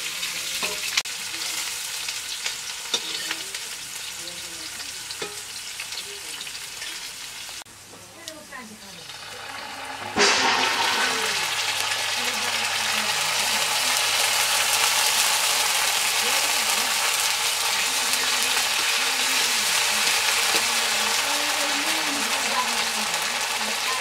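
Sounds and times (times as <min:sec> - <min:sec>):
paste and onions sizzling in oil: 0:00.0 - 0:24.0.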